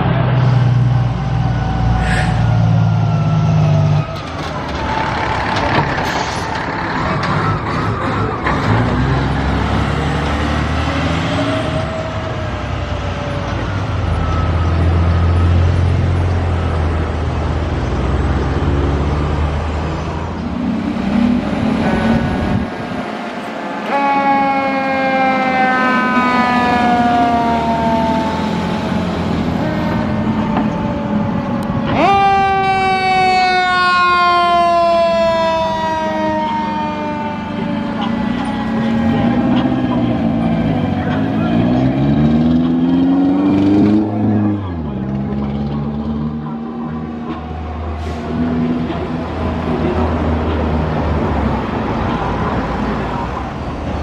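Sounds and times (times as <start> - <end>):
truck engine drone: 0.0 - 54.0
siren wailing: 0.7 - 7.6, 10.7 - 16.8, 23.6 - 45.2.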